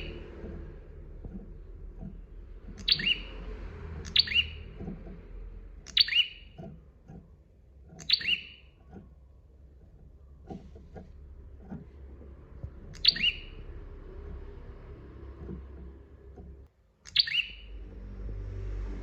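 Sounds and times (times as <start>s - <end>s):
bird calling sharp high notes: 2.8s - 3.4s, 4.0s - 4.7s, 5.9s - 6.6s, 8.0s - 8.7s, 12.8s - 14.4s, 17.1s - 17.8s.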